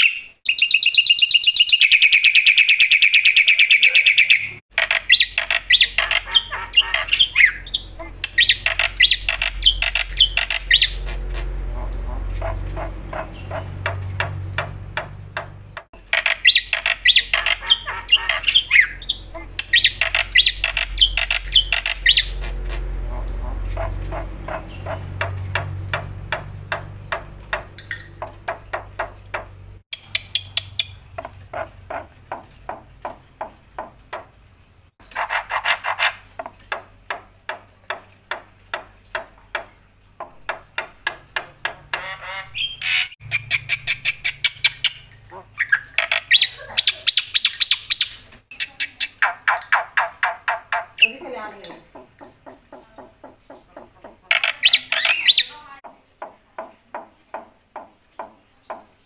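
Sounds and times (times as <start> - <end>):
harsh squawky bird phrases: 0.0 - 15.5, 16.1 - 28.8, 41.4 - 55.8
starling singing: 0.0 - 32.8, 40.5 - 55.8
low hum: 7.5 - 16.1, 19.1 - 29.8.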